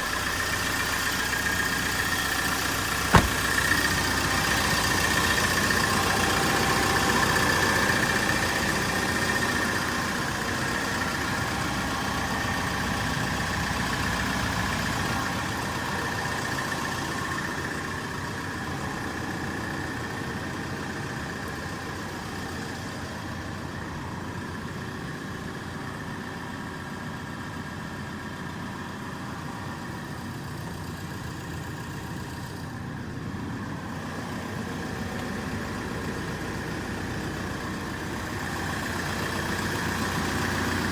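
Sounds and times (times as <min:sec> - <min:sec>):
truck engine idling: 0:01.6 - 0:07.1.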